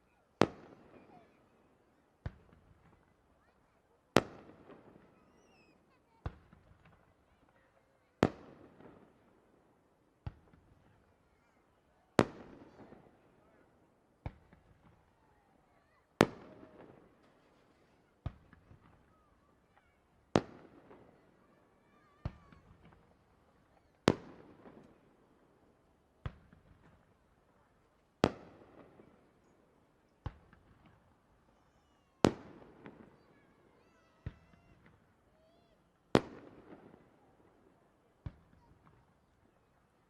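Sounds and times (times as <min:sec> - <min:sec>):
faint crowd voices: 0:00.0 - 0:40.0
fireworks bursting: 0:30.2 - 0:39.6.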